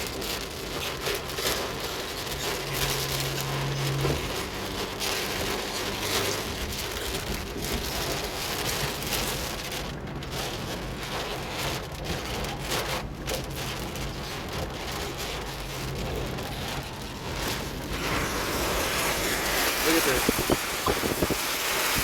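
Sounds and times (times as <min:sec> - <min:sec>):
engine and road hum: 0:00.0 - 0:22.0
heavy rain hitting a car: 0:00.0 - 0:22.0.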